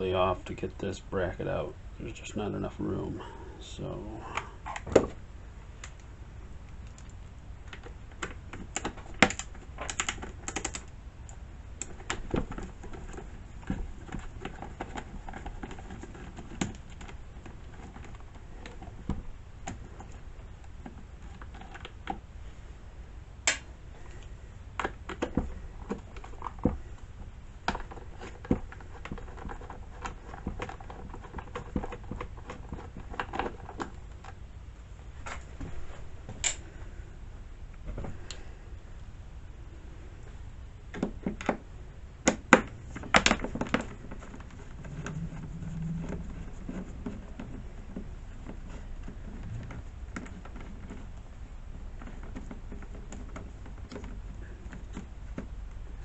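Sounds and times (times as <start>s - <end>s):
clicks and knocks on plastic cover: 7.7s - 10.9s, 11.8s - 22.2s, 24.8s - 34.4s, 40.9s - 44.7s, 46.8s - 55.7s.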